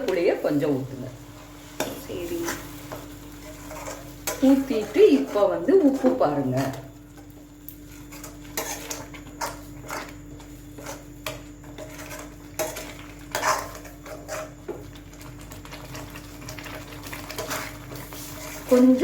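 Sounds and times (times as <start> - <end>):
metal spoon scraping a pot: 1.8 - 6.8, 7.9 - 14.7, 17.2 - 19.0.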